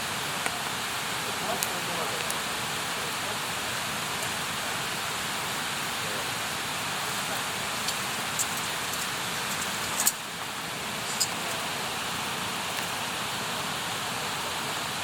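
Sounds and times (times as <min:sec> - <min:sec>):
campfire hissing: 0:00.0 - 0:15.0
wood crackling and popping: 0:00.4 - 0:05.3, 0:06.5 - 0:13.1.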